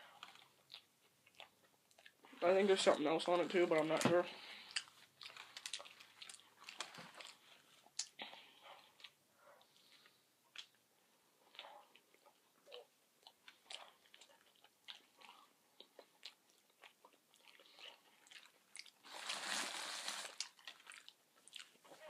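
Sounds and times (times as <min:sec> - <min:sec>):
chewing sandwich: 0:00.0 - 0:03.6, 0:04.4 - 0:22.0
wet mouth clicks and smacks: 0:07.9 - 0:08.2
rustling: 0:19.0 - 0:21.1.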